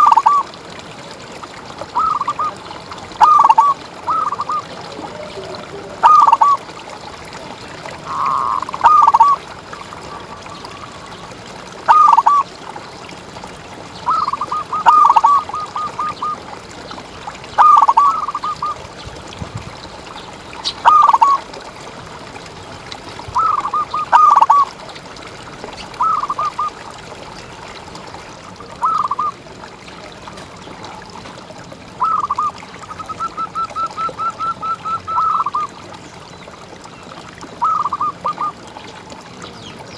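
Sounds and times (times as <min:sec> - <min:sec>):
dove cooing rolling notes: 0:00.0 - 0:00.6, 0:01.9 - 0:11.2, 0:11.9 - 0:12.5, 0:14.0 - 0:16.5, 0:17.6 - 0:18.8, 0:20.8 - 0:21.5, 0:23.3 - 0:24.7, 0:25.9 - 0:26.8, 0:28.7 - 0:29.4, 0:32.0 - 0:35.7, 0:37.6 - 0:38.6.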